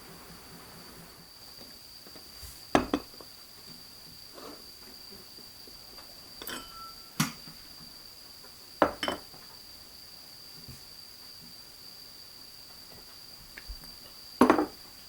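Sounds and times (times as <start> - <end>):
dishes clinking: 6.4 - 7.4, 8.8 - 9.3
steady high-pitched tone: 6.6 - 7.2.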